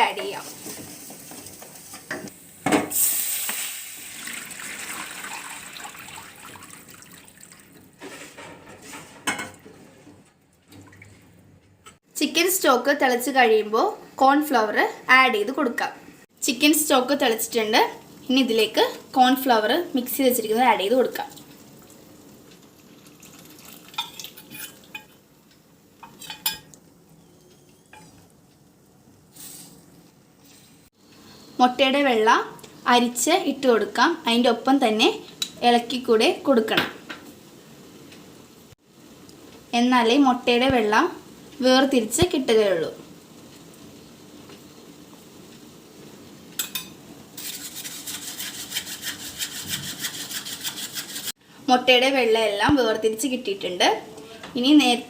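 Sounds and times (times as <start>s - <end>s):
loud hiss from hot pan: 2.4s - 4.4s, 29.3s - 29.8s
liquid pouring: 3.7s - 8.0s, 22.8s - 24.4s
metal spoon stirring in pot: 23.3s - 25.2s, 26.0s - 26.8s, 46.6s - 51.3s.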